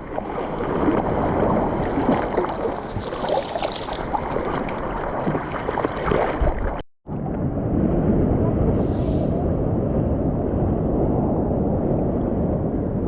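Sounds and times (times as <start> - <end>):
seawater splashing at microphone: 0.0 - 6.8.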